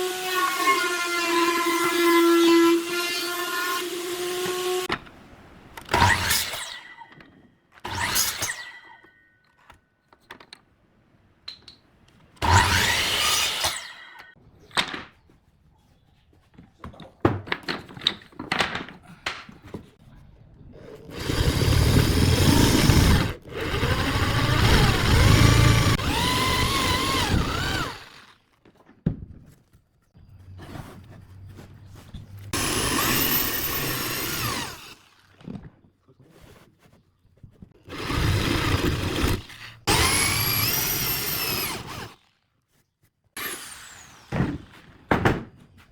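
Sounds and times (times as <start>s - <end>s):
power tool running: 21.1s - 28.3s, 32.6s - 35.2s, 37.9s - 42.2s.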